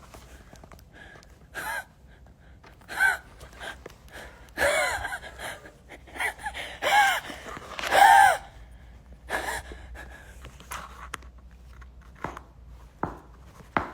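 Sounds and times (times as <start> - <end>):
person gasping: 0.9 - 2.2, 2.8 - 10.5.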